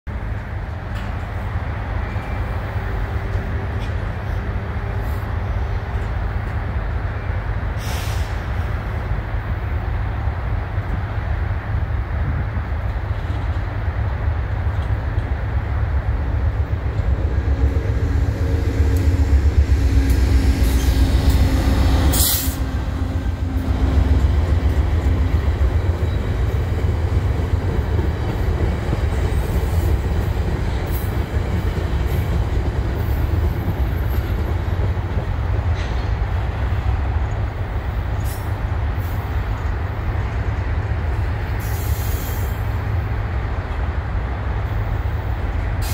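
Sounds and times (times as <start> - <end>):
freight train rumbling past: 0.1 - 45.9
passenger train passing: 0.1 - 45.9
sharp high hiss: 18.3 - 23.5.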